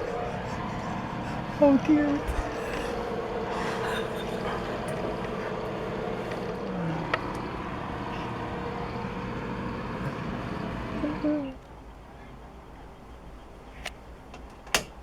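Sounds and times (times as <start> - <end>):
vehicle engine running: 0.0 - 11.5.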